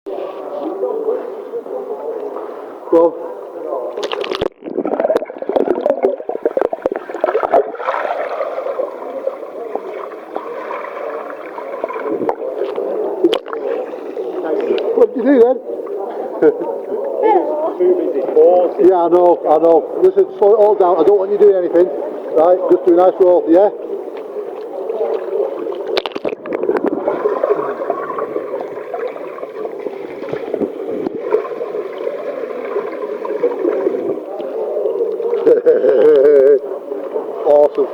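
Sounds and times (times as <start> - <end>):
gurgling bubbling water: 3.8 - 17.3, 23.8 - 37.9
sharp splashes and knocks: 4.0 - 8.3, 25.9 - 26.9
kayak splashing in water: 4.0 - 12.3.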